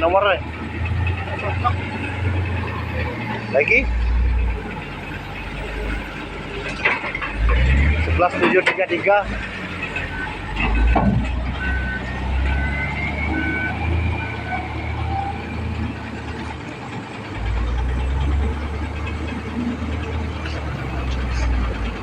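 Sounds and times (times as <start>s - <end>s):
diesel engine running: 0.0s - 22.0s
reversing alarm beeping: 9.6s - 16.5s.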